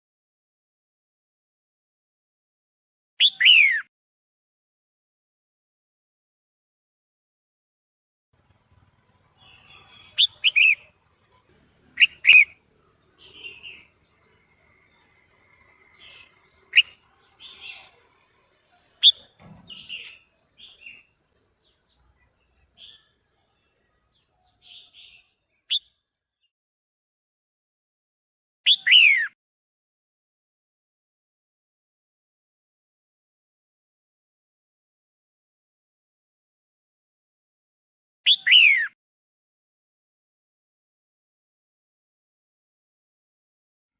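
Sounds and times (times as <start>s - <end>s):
quiet bird chirps: 8.4s - 26.5s
bird calling sharp notes: 9.3s - 11.1s, 11.9s - 14.2s, 15.2s - 18.0s.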